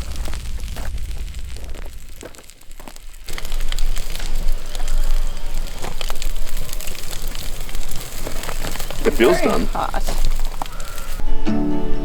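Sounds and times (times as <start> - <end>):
campfire crackling and popping: 0.0 - 11.2.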